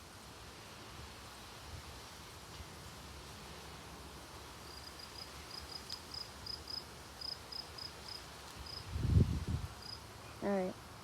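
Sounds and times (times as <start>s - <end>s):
faint outdoor hiss: 0.0s - 11.0s
cricket chirping: 4.6s - 8.9s, 9.8s - 10.0s.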